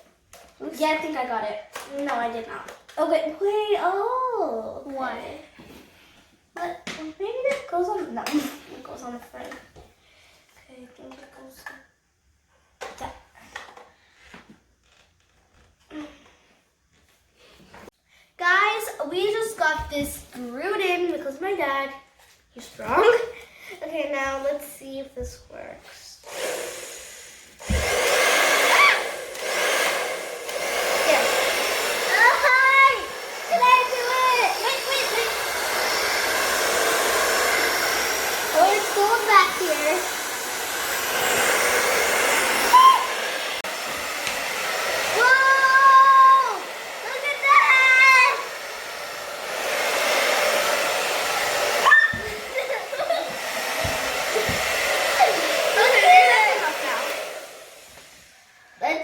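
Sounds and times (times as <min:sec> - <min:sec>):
hair dryer blowing: 0:26.2 - 0:59.0.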